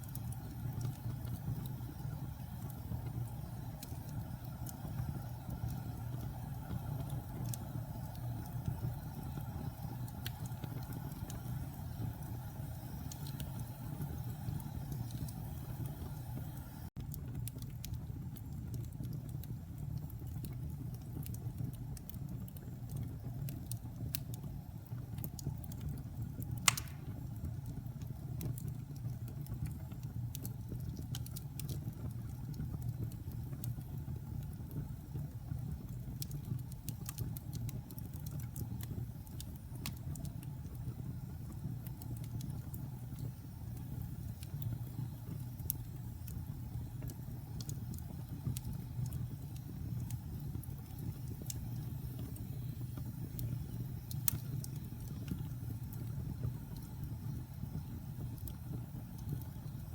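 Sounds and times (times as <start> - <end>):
fire rumbling and crackling: 0.0 - 59.9
loud pop of fire: 26.6 - 27.3.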